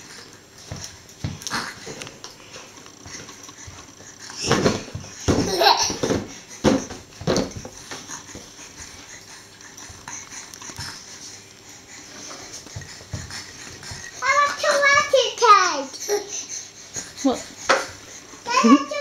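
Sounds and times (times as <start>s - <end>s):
child laughing and squealing: 18.5s - 19.0s.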